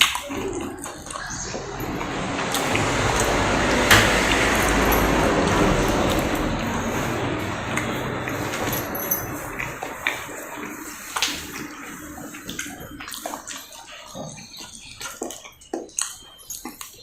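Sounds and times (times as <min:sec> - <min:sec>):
wet chewing and mouth sounds: 0:00.0 - 0:03.5, 0:09.3 - 0:17.0.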